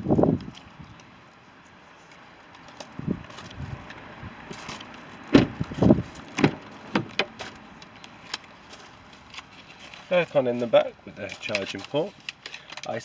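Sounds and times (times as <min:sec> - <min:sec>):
dull knocks and clunks: 0:05.3 - 0:07.5.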